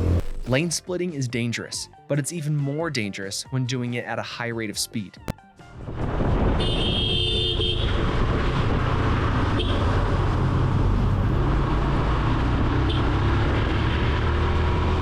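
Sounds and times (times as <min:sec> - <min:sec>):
road rumble: 0:05.6 - 0:15.0
motorcycle engine at speed: 0:06.4 - 0:15.0
horn sounding: 0:06.6 - 0:08.0, 0:09.5 - 0:09.9.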